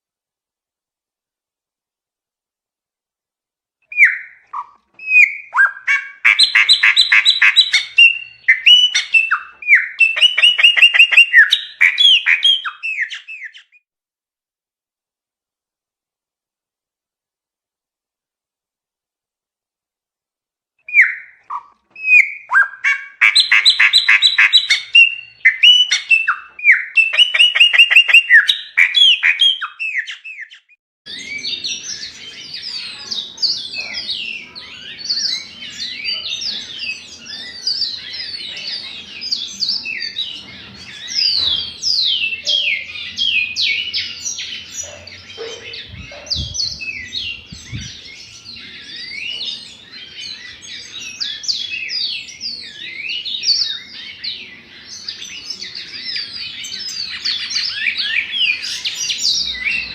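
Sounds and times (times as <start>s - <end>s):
bird rapid falling song: 3.9s - 13.7s, 39.1s - 59.9s
bird trilling and whistling: 3.9s - 13.8s, 20.9s - 54.3s, 54.9s - 59.9s.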